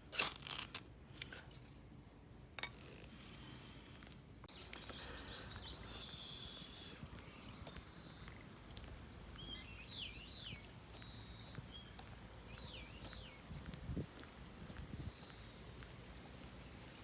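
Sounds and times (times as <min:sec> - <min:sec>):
bird calling: 0:04.5 - 0:13.4.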